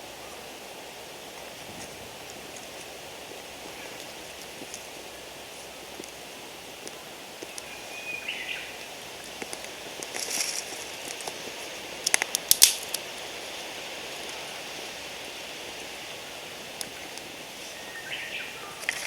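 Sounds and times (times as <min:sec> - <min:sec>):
fire snaps and cracks: 0:09.2 - 0:13.1
twigs rustling: 0:09.2 - 0:13.1.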